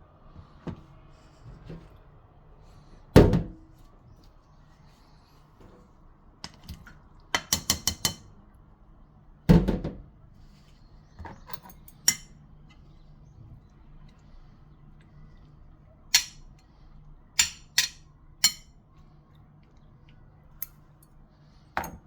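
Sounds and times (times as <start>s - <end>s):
kitchenware clinking: 11.3s - 12.4s, 17.4s - 18.7s, 21.8s - 22.0s.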